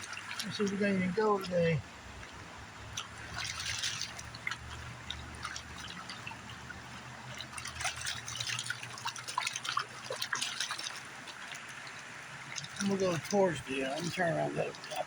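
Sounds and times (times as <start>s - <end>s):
water sloshing and splashing: 0.0s - 15.0s.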